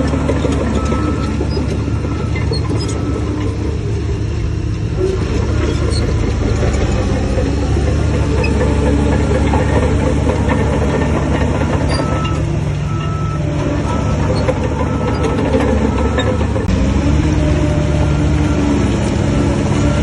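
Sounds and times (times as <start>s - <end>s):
reversing alarm beeping: 0.0s - 3.7s, 10.6s - 16.7s
diesel engine running under load: 0.0s - 20.0s.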